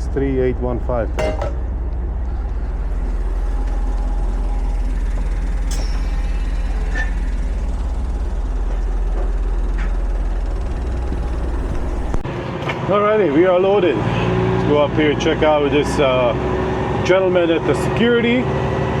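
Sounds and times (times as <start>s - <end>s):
diesel truck engine idling: 0.0s - 19.0s.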